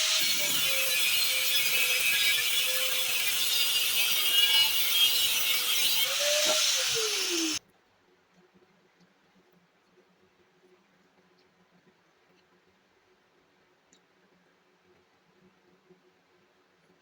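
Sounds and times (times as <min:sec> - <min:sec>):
electric grinder grinding metal: 0:00.0 - 0:07.6.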